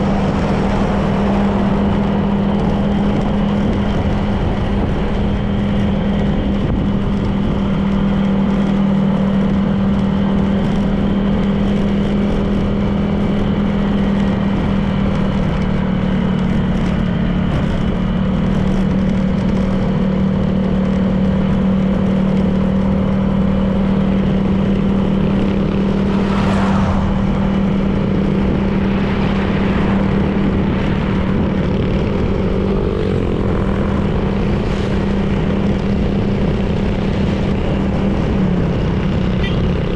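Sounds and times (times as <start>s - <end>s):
rush of noise: 0.0s - 9.0s, 22.3s - 39.9s
road and wind noise: 0.0s - 39.9s
scooter engine cruising: 0.0s - 39.9s.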